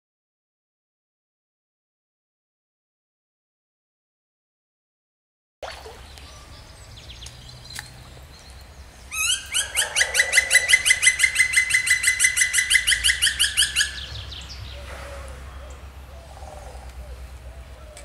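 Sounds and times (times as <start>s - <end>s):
bird trilling: 9.1s - 18.0s.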